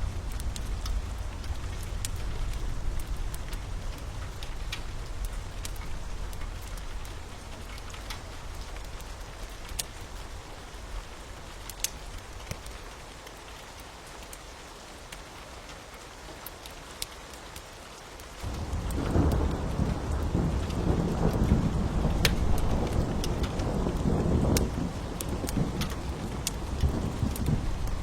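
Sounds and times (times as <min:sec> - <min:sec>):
wood fire crackling: 0:00.0 - 0:14.4, 0:16.5 - 0:28.0
rain hiss: 0:00.0 - 0:28.0
thunder rumble: 0:18.4 - 0:28.0.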